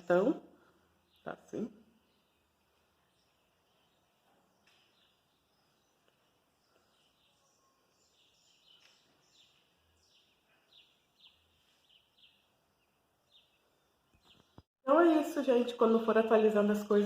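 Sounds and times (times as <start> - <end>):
faint bird chirps: 0.6 - 14.6.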